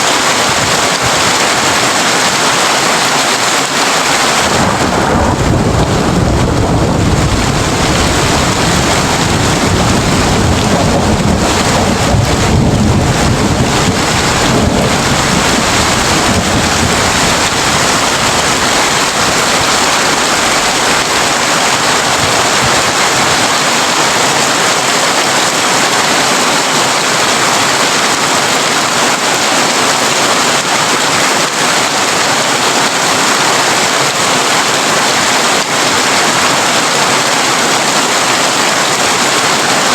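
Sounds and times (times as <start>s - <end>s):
heavy rain on a tin roof: 0.0s - 39.9s
low thunder rumble: 4.4s - 21.8s.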